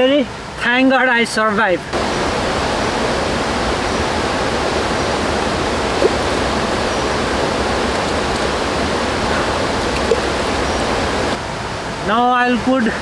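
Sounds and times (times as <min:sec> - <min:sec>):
mountain river rushing: 0:01.9 - 0:12.1.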